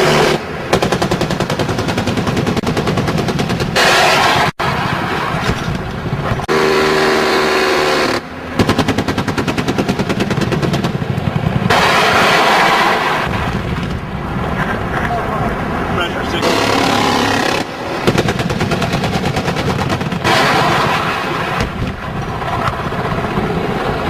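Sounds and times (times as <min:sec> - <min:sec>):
automatic weapon fire: 0:08.6 - 0:11.1, 0:16.4 - 0:21.9.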